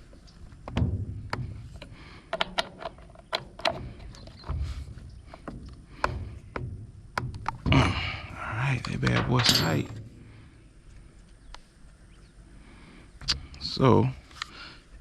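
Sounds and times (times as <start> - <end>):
dull knocks: 0.6 - 2.1, 3.4 - 10.6
metal clicks and clinks: 1.8 - 4.6, 8.8 - 10.2.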